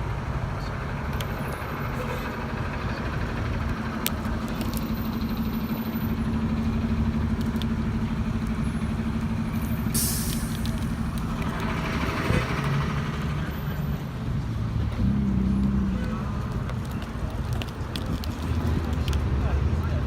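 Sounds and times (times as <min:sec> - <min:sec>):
street traffic noise: 0:00.0 - 0:20.0
vehicle engine running close by: 0:00.0 - 0:20.0
short hiss: 0:10.0 - 0:11.0.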